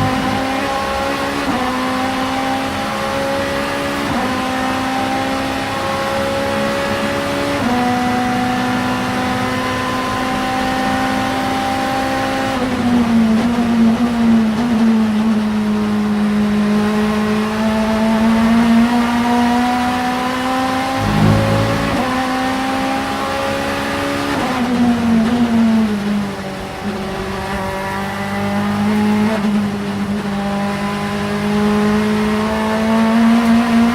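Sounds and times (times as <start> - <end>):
low rumble: 0.0 - 1.0, 20.9 - 22.3
race car engine at high revs: 0.0 - 33.9.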